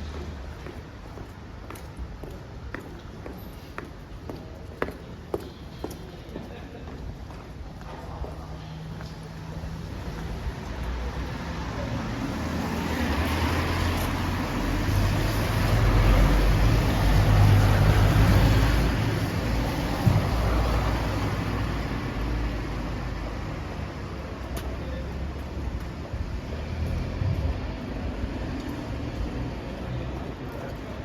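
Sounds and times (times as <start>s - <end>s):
vehicle passing on wet street: 8.4s - 31.0s.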